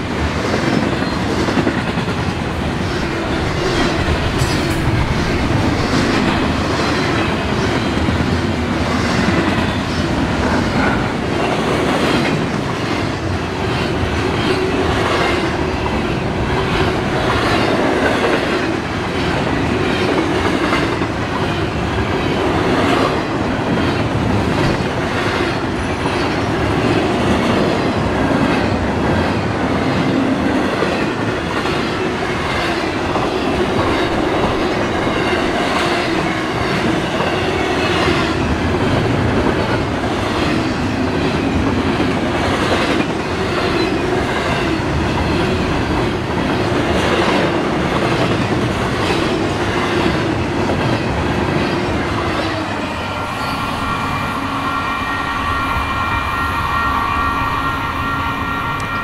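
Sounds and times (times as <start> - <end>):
train wheels rolling on rail: 0.0 - 59.0.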